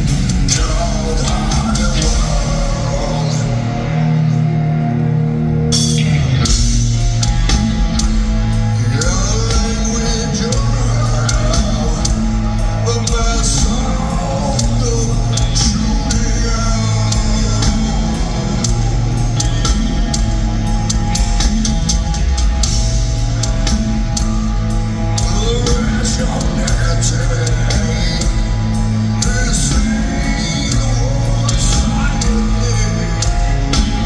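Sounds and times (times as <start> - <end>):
person singing: 0.0 - 5.0, 8.8 - 20.0, 25.0 - 34.0
heavy metal band playing live: 0.0 - 34.0.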